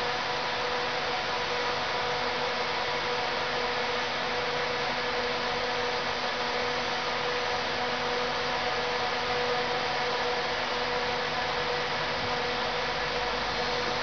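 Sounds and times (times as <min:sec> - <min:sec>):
steady whine: 0:00.0 - 0:14.0
train mechanical hum: 0:00.0 - 0:14.0.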